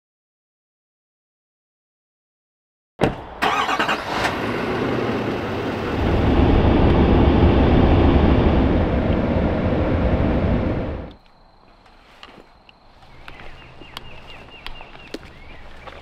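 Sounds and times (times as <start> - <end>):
pickup truck engine rumble: 3.1 - 11.1.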